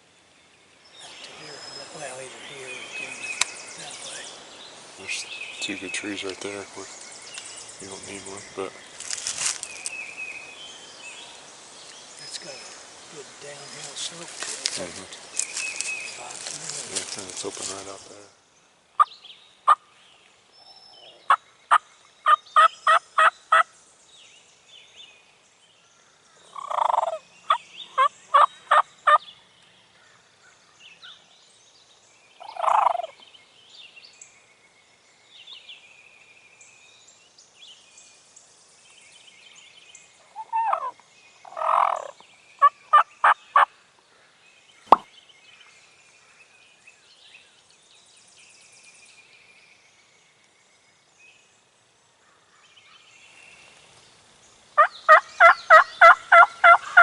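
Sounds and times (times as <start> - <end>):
small birds singing faintly: 0.0 - 57.0
turkey gobbling: 22.6 - 23.6, 26.6 - 29.2, 32.5 - 33.1, 40.4 - 43.7, 54.8 - 57.0.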